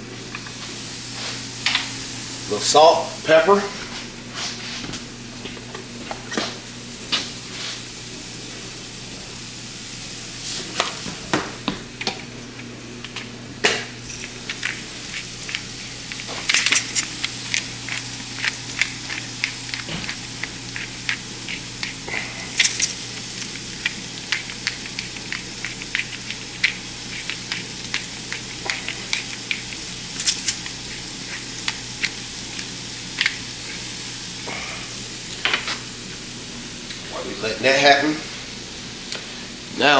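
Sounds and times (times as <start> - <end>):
vegetables sizzling in frying pan: 0.6 - 3.4, 6.5 - 11.6, 13.8 - 37.2.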